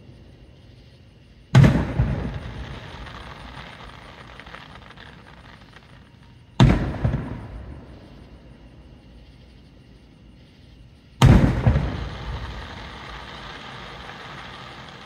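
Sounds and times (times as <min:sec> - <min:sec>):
firework reports: 0:01.5 - 0:08.2, 0:11.2 - 0:15.0
firework shells booming: 0:01.5 - 0:08.2, 0:11.2 - 0:15.0
echo of explosions: 0:01.5 - 0:08.7, 0:11.0 - 0:15.0.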